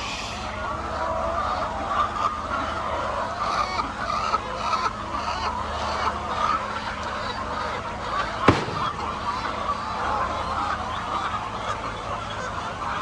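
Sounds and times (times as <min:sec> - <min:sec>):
sharp knock: 0:08.5 - 0:09.4.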